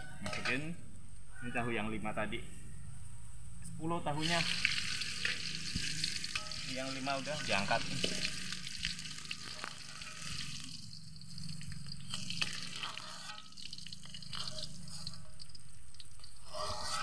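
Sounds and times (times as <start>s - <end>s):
spatula scraping a wok: 4.2s - 15.5s, 16.2s - 17.0s
tofu sizzling in oil: 4.2s - 17.0s.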